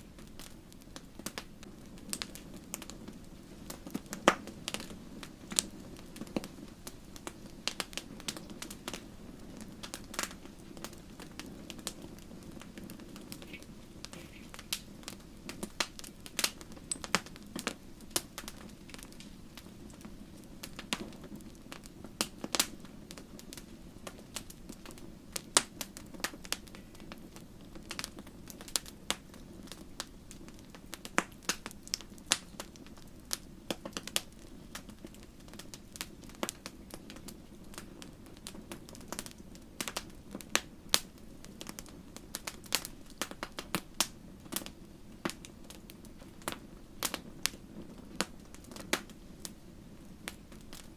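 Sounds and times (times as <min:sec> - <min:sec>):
low rumble of flames: 0:00.0 - 0:50.9
wood fire crackling and popping: 0:00.0 - 0:50.9.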